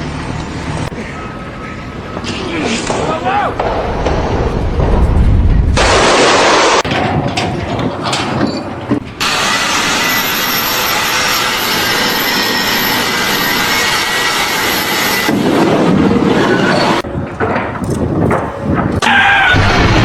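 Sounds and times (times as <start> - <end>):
machine noise with whine: 0.0 - 20.0.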